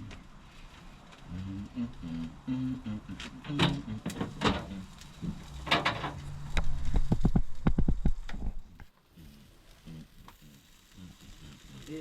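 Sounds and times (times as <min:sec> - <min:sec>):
sharp knocks and clatters: 0:03.5 - 0:08.6.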